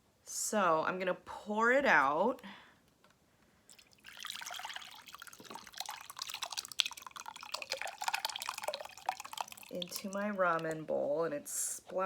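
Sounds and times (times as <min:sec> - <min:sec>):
soup pouring and splashing: 0:03.7 - 0:10.9.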